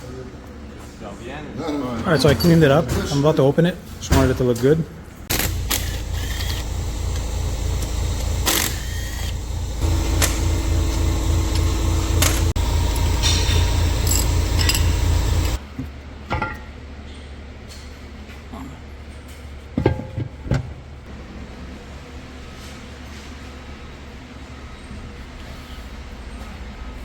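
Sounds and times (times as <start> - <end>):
low pulsing machine rumble: 5.3 - 15.6
tools clanking on metal: 9.8 - 15.6.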